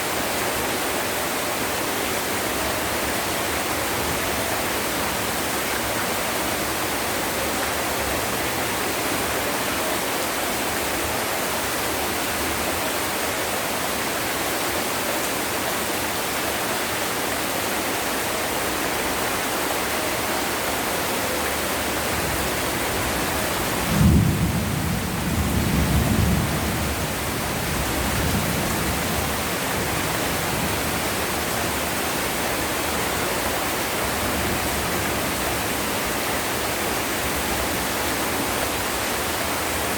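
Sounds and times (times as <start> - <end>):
heavy rain: 0.0 - 39.9
thunder clap rumbling: 23.6 - 29.9.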